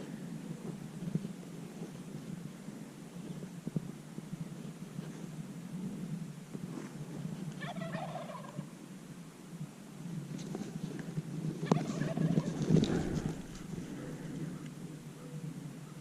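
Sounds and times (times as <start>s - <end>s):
turkey gobbling: 7.6s - 8.7s, 11.6s - 15.4s.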